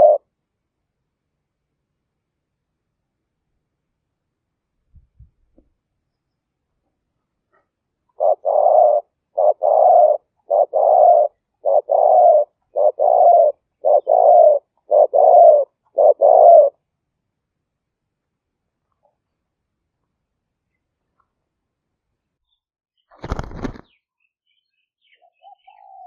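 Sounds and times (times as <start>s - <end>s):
dove cooing: 0.0s - 0.3s, 8.1s - 16.8s, 25.3s - 26.0s.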